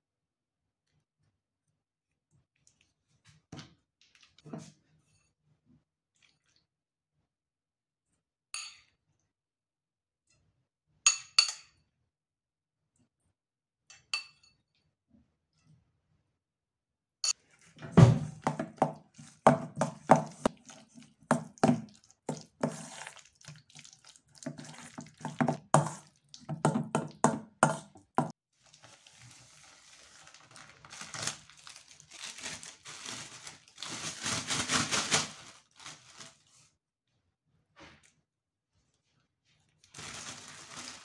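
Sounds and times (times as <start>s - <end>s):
plastic bag crinkling: 28.6s - 36.6s, 39.9s - 41.0s.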